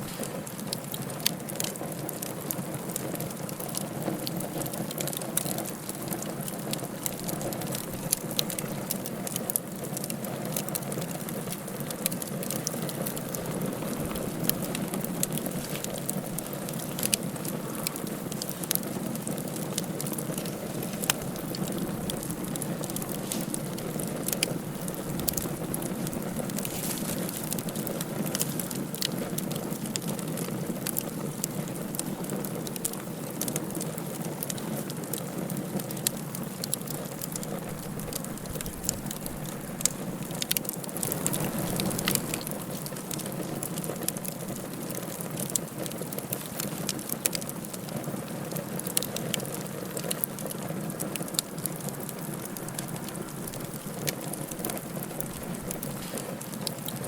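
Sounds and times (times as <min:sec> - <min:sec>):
fire flame rushing: 0:00.0 - 0:34.5, 0:36.6 - 0:45.5
fire crackling and popping: 0:00.0 - 0:57.0.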